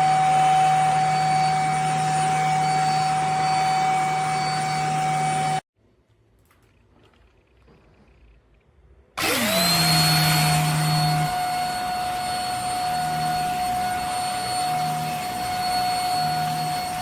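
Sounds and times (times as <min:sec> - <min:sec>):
vacuum motor whine: 0:00.0 - 0:05.6, 0:09.2 - 0:17.0.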